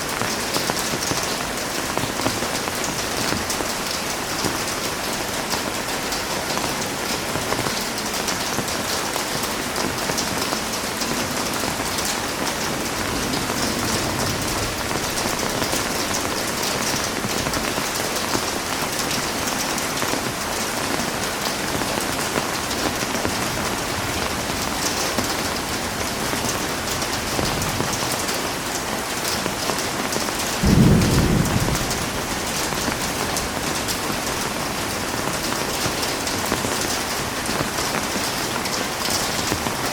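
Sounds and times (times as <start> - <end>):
heavy rain falling: 0.0 - 39.9
low burst of thunder: 12.8 - 17.5, 30.6 - 34.0.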